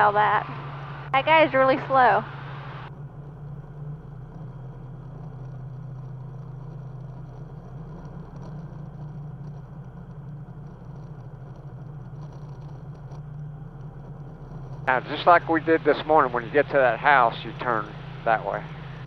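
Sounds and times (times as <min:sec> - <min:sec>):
aircraft engine and propeller drone: 0:00.0 - 0:07.4, 0:14.1 - 0:19.0.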